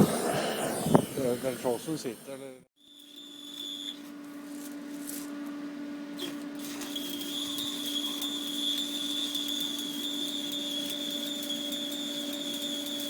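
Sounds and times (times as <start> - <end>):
arc welding crackling hiss: 0.0 - 5.3, 6.2 - 13.0
high thin whine: 0.0 - 5.3.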